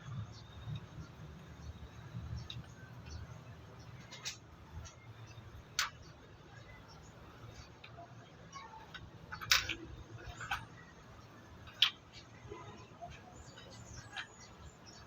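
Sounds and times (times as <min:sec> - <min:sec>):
sharp clicks and knocks: 0:08.9 - 0:15.0.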